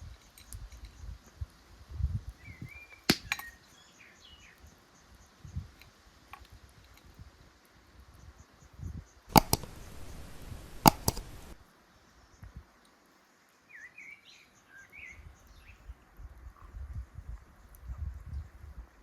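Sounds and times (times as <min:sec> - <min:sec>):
sharp clicks: 0:03.1 - 0:03.4, 0:09.3 - 0:11.6
small bird chirping: 0:08.8 - 0:11.6.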